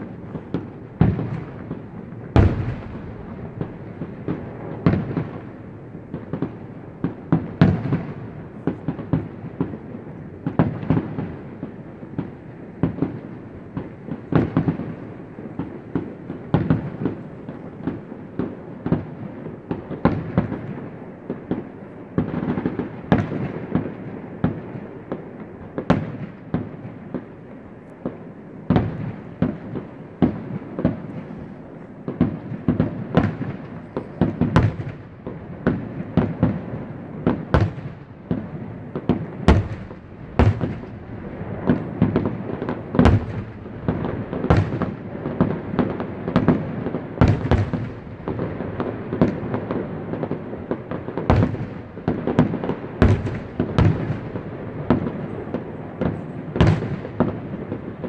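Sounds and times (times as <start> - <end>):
fireworks bursting: 0.0 - 58.0
fireworks crackling: 0.0 - 58.0.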